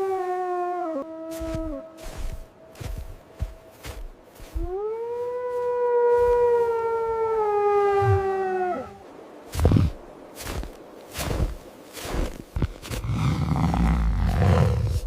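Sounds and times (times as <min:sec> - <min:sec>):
animal howl-like call: 0:00.0 - 0:09.2.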